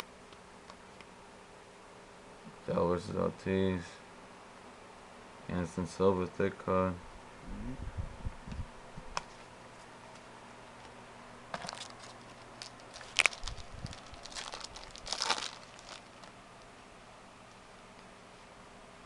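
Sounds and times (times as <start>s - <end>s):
wrapper crinkling and tearing: 11.6s - 16.3s.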